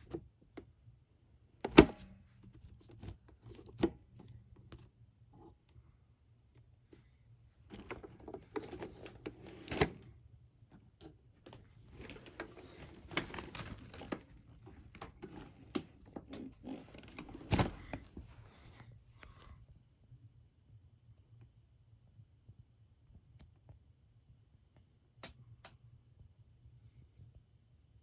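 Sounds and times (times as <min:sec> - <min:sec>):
rustling and clicking: 0:11.4 - 0:19.4.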